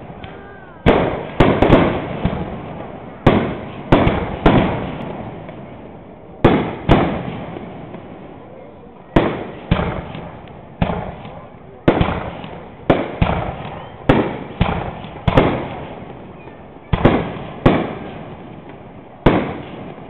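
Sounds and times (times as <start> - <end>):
firework shells bursting with echo: 0.0 - 8.5, 9.1 - 20.0.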